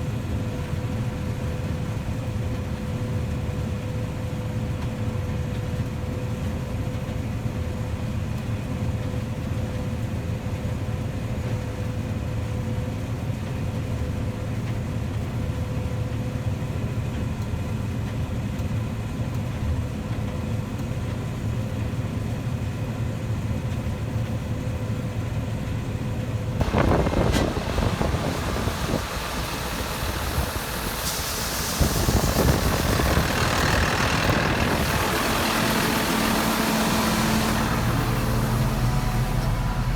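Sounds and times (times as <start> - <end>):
farm machinery engine running: 26.5 - 39.9
loud rushing noise: 26.6 - 39.9
steady whine: 26.6 - 39.9.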